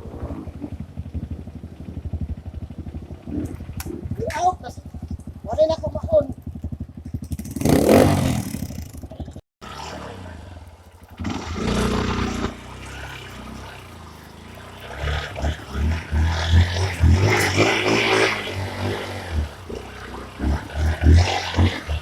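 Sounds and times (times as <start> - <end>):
dirt bike engine: 0.0 - 22.0.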